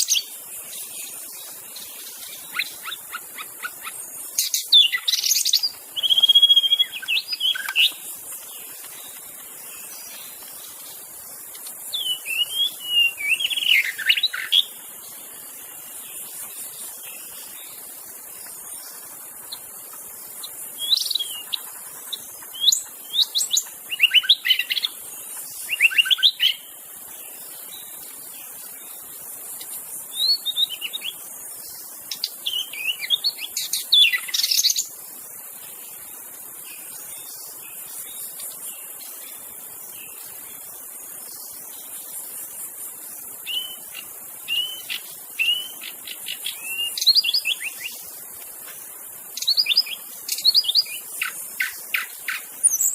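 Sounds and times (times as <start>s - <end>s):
bird singing whistled notes: 0.0s - 9.0s, 11.8s - 14.8s, 20.4s - 26.8s, 29.5s - 35.0s, 41.3s - 48.1s, 49.4s - 52.9s
high insect drone: 0.0s - 52.9s.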